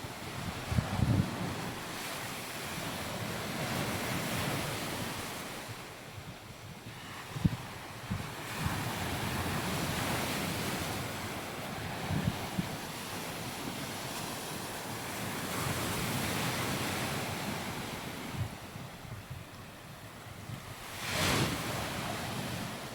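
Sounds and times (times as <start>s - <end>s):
wind on microphone: 0.0s - 14.1s, 15.2s - 22.9s
surf washing onto beach: 20.8s - 22.9s.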